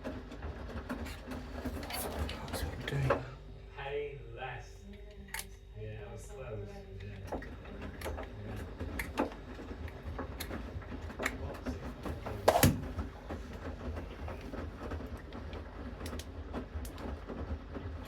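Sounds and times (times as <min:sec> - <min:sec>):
washing machine drum rumbling: 0:00.0 - 0:03.4, 0:07.2 - 0:18.0.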